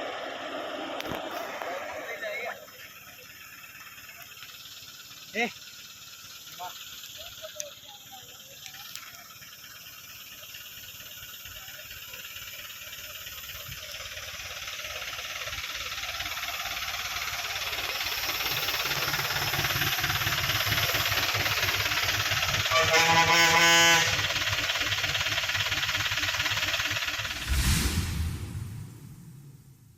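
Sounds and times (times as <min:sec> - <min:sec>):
vehicle approaching with tyre hiss: 0:00.0 - 0:29.9
low rumble: 0:27.3 - 0:29.9.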